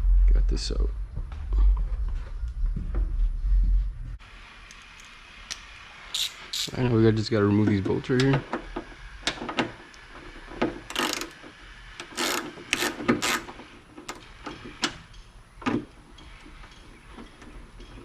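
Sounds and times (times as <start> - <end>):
ratchet wrench clicking: 6.2 - 6.8, 10.9 - 11.4, 12.0 - 13.5.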